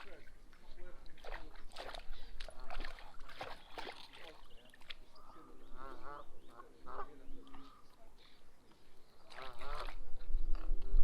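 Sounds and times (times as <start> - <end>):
dog splashing in water: 1.2 - 5.0
waterfowl calling: 2.5 - 8.4, 9.3 - 10.0.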